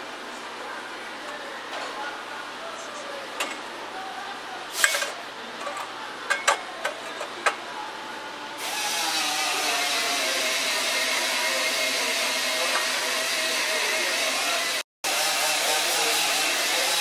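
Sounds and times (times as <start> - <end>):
power tool whining: 8.6 - 17.0.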